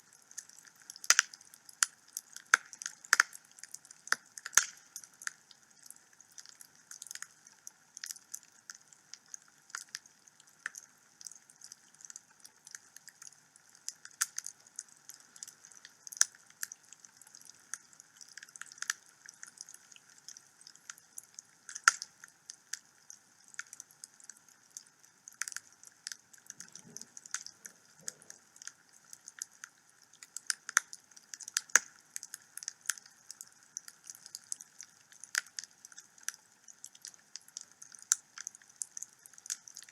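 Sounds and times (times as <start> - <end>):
faint steady hiss: 0.0 - 39.9
wood fire crackling: 0.2 - 10.0, 21.6 - 39.9
sharp pops and snaps: 0.3 - 7.3, 13.9 - 21.0, 21.6 - 39.9.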